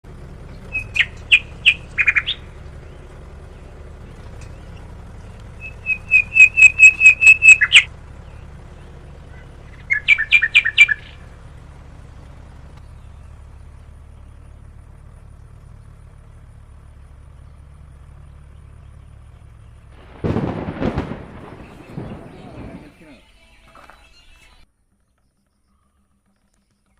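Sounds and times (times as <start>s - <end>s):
bird calling sharp repeated notes: 0.4s - 13.4s
short rough noise: 20.0s - 23.0s.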